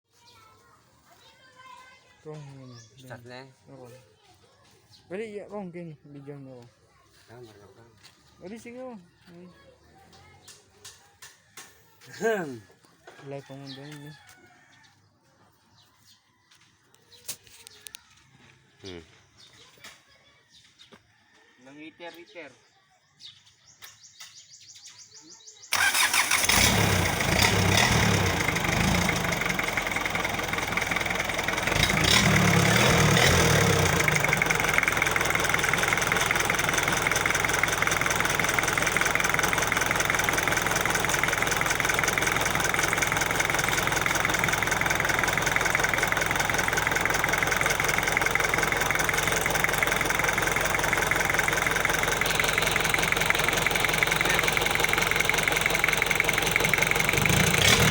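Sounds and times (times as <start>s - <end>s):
diesel engine starting and idling: 25.7s - 57.9s.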